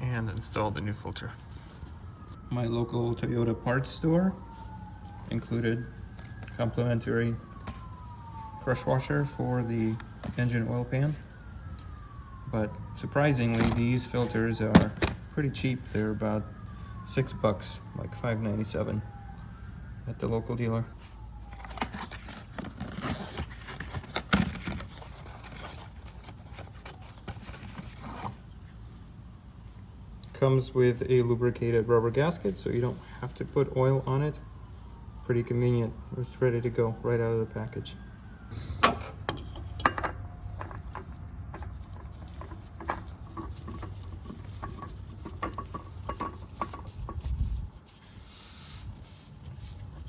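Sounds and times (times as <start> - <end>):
low steady rumble: 38.3 - 50.0
tools clicking and tapping: 38.8 - 47.2.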